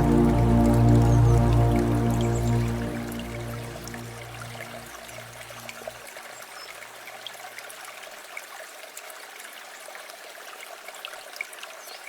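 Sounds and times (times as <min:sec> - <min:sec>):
low sustained music note: 0:00.0 - 0:05.7.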